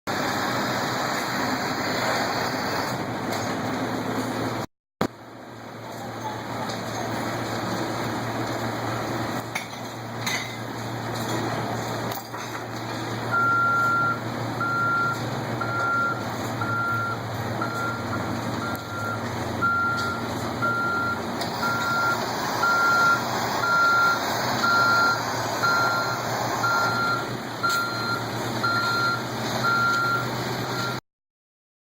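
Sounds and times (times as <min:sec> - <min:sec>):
truck engine running: 0:00.1 - 0:31.0
reverse alarm beeping: 0:13.3 - 0:30.2.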